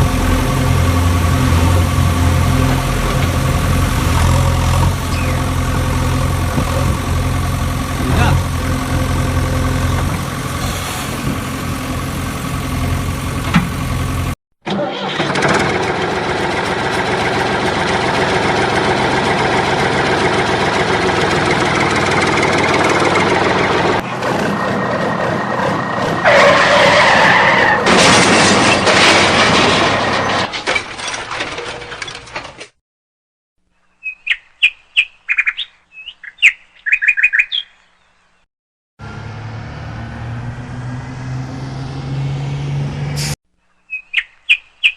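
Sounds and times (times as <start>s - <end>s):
engine hum: 0.0s - 30.5s, 39.0s - 43.4s
rough engine noise: 0.0s - 32.8s, 39.0s - 43.4s.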